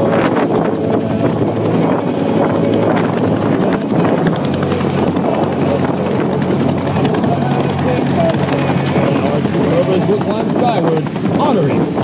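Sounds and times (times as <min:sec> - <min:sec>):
helicopter rotor and engine drone: 0:00.0 - 0:12.0
low hum: 0:00.0 - 0:12.0.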